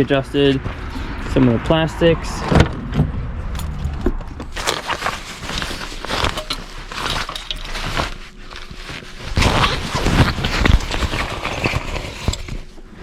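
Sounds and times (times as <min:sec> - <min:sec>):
rustling: 0:03.6 - 0:13.0.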